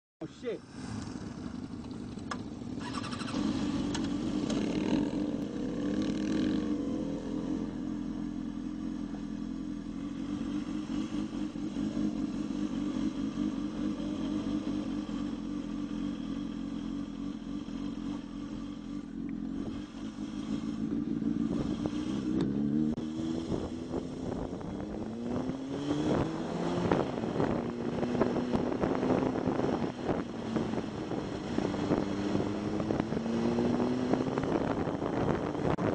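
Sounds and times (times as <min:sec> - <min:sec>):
motorcycle engine: 0:00.6 - 0:35.9
wind noise: 0:20.5 - 0:35.9.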